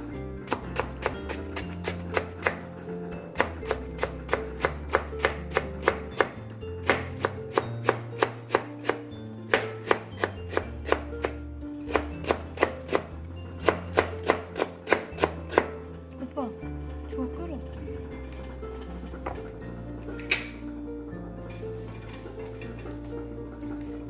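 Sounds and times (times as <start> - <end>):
background music: 0.0 - 24.0
knife chopping on cutting board: 0.5 - 2.6, 3.4 - 13.0, 13.6 - 15.7.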